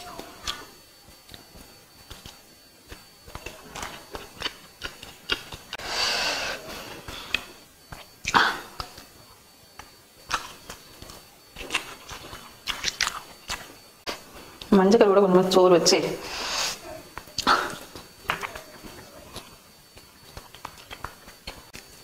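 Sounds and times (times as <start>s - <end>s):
wet chewing: 0.4s - 5.8s, 9.8s - 14.7s, 17.1s - 22.0s
lip and tongue clicks: 2.1s - 5.8s, 10.3s - 13.7s, 17.4s - 21.6s
hiss-like rush: 16.2s - 16.9s.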